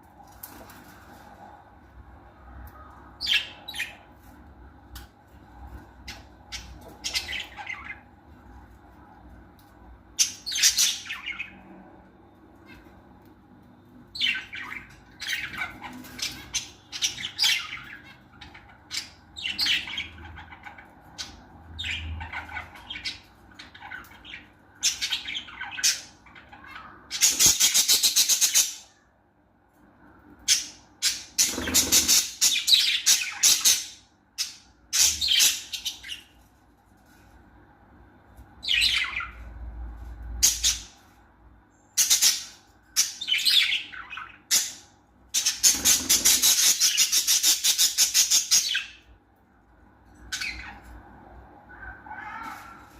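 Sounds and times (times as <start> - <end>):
lovebirds chirping and squawking: 2.2 - 29.1, 30.0 - 37.5, 38.4 - 52.9
birds screeching: 2.3 - 4.2, 5.7 - 8.6, 10.1 - 12.0, 13.9 - 29.1, 30.4 - 36.5, 38.6 - 49.2, 50.1 - 52.9.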